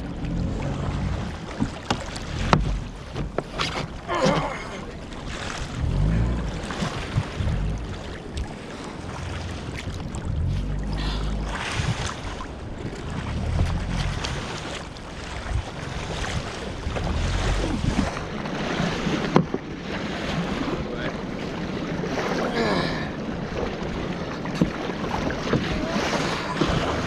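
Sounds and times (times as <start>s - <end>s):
sea water sloshing: 0.0s - 27.0s
wind buffeting microphone: 5.2s - 22.4s.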